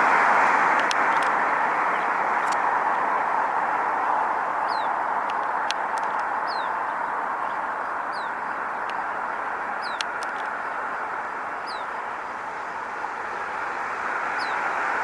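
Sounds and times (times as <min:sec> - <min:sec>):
small bird chirping: 0:04.6 - 0:08.5, 0:09.8 - 0:10.5, 0:11.6 - 0:11.9, 0:14.3 - 0:14.8.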